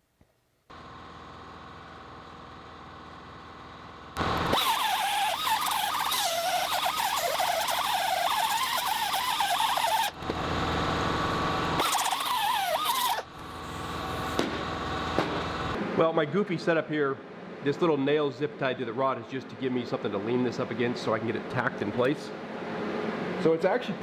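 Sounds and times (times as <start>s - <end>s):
steady hum: 0.7s - 16.0s
abrasive wheel grinding steel: 4.2s - 14.4s.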